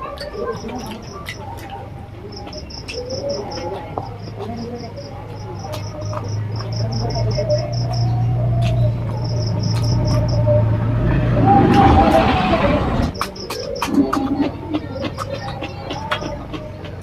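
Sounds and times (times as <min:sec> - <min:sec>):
cricket chirping: 0:02.2 - 0:11.0.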